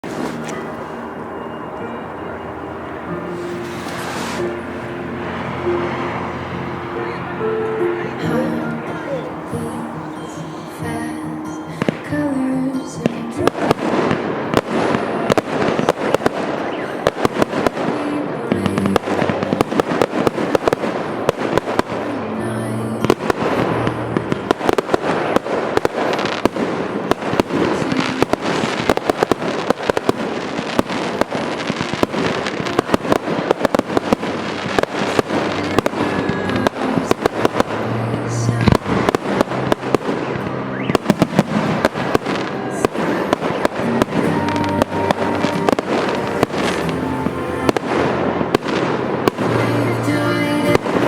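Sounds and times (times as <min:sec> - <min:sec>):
fireworks bangs and crackles: 0:00.0 - 0:51.0
music playing: 0:00.0 - 0:51.0.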